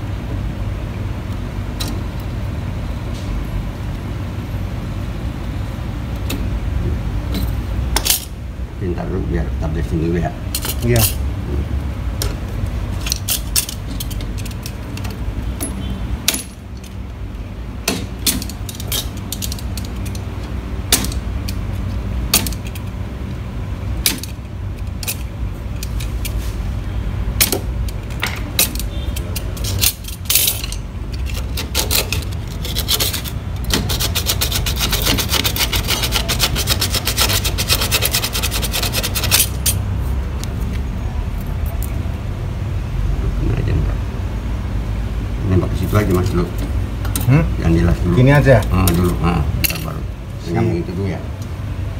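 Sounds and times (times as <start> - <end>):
metal tools clinking and scraping: 10.5 - 11.2, 13.0 - 17.0, 17.9 - 22.9, 24.0 - 26.5, 27.4 - 39.8, 48.4 - 50.0
rapid clicking and rasping: 31.1 - 39.8.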